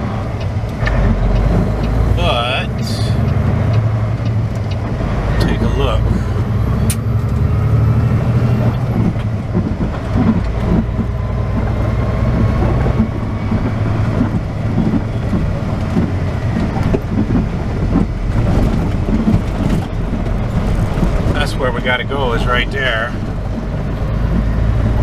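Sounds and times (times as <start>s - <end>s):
diesel truck engine droning: 0.0s - 25.0s
knocks and rattles: 3.2s - 22.0s.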